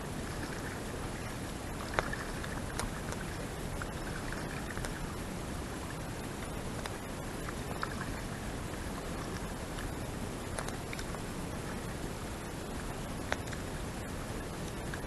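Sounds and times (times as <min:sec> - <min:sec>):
water noise: 0:00.0 - 0:15.0
faint light clicks: 0:06.4 - 0:08.3, 0:09.2 - 0:11.8, 0:13.2 - 0:13.7.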